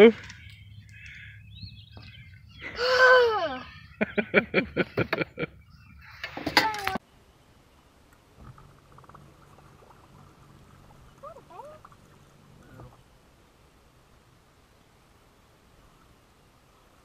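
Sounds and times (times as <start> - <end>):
faint low hum: 7.0 - 17.0.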